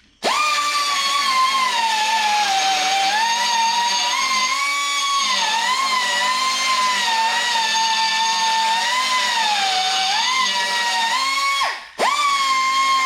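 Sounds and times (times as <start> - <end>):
angle grinder on metal: 0.2 - 13.0.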